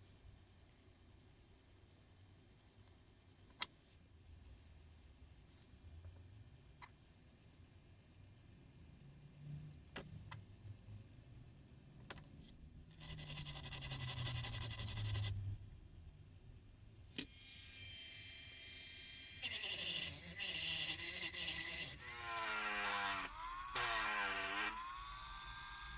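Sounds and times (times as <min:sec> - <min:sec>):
electric motor tool whining: 0:17.2 - 0:25.9.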